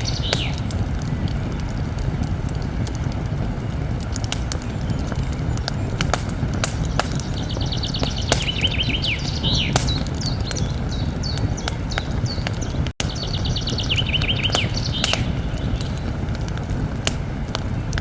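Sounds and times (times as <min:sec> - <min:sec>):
bird trilling and chirping: 0:00.0 - 0:00.6, 0:04.8 - 0:16.0
campfire crackling and popping: 0:00.0 - 0:18.0.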